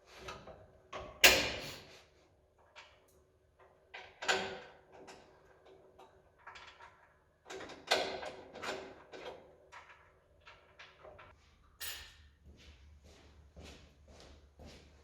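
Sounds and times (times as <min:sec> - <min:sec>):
knocks and clatters of handling: 0:02.6 - 0:12.2.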